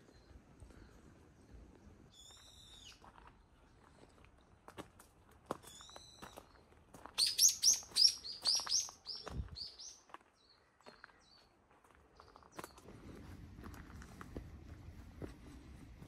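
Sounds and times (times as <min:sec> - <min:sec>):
bird chirping: 0:07.2 - 0:11.5.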